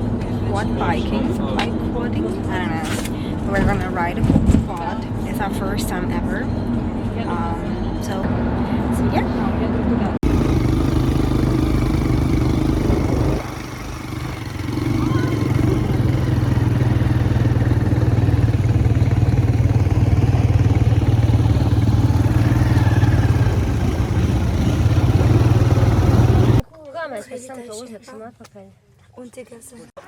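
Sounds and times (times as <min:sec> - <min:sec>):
quad bike engine running: 0:10.2 - 0:26.6.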